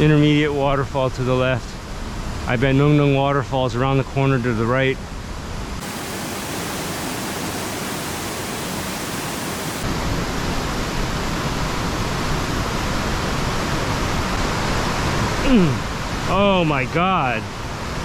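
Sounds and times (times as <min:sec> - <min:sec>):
waterfall roar: 0:05.8 - 0:16.6.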